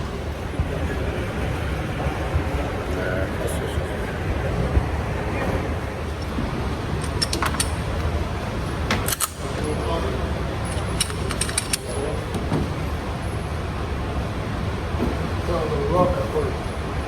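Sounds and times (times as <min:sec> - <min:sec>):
light metallic clicks and rattles: 0:07.0 - 0:08.1, 0:10.6 - 0:12.2.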